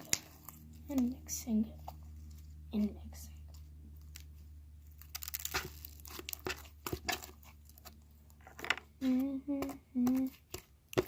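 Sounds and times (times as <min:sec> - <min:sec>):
slime clicking and crackling: 0:00.0 - 0:01.3, 0:03.9 - 0:08.4, 0:09.0 - 0:11.0.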